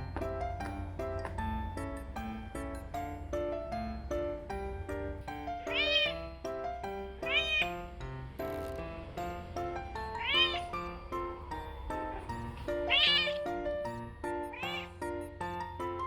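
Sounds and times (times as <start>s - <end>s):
background music: 0.0s - 16.0s
cat meowing: 5.6s - 6.3s, 7.2s - 7.8s, 10.0s - 11.0s, 12.1s - 13.6s, 14.4s - 15.0s.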